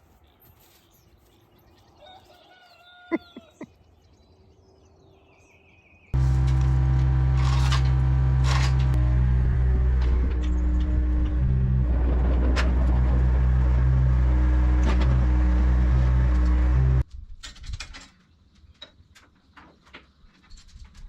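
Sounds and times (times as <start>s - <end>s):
heavy equipment engine running: 6.2s - 17.0s.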